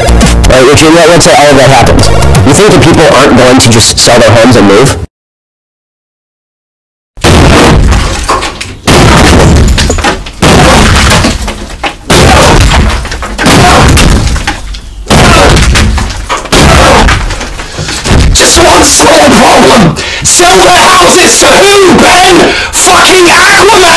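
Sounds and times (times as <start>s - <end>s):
loud distorted crashes: 7.2s - 19.6s.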